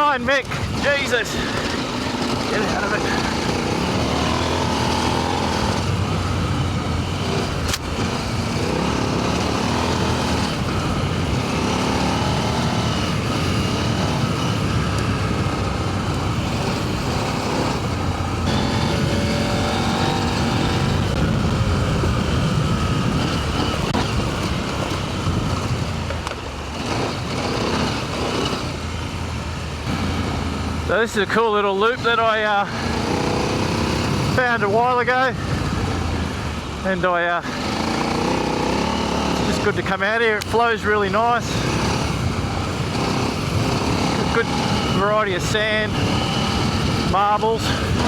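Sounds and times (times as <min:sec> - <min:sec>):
motorcycle engine: 0:00.0 - 0:48.0
wind and tyre noise: 0:00.0 - 0:48.0
sharp click: 0:07.6 - 0:07.9.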